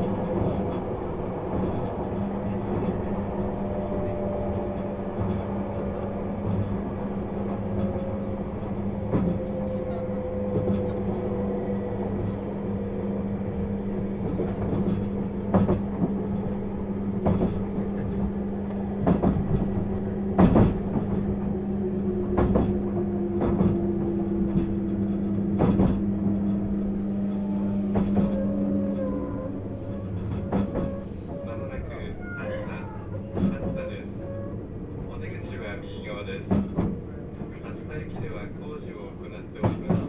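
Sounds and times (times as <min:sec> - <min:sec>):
electric train hum and whine: 0:00.0 - 0:40.0
train wheels knocking over rail joints: 0:17.2 - 0:21.4, 0:22.2 - 0:33.9, 0:39.5 - 0:40.0.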